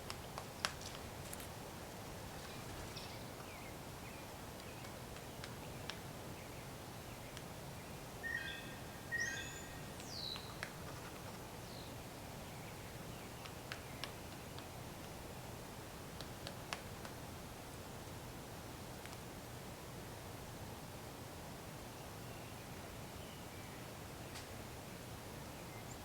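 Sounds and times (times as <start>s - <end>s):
outdoor background noise: 0.0s - 26.0s
bird calls: 8.2s - 10.6s
faint clicks: 19.0s - 19.2s.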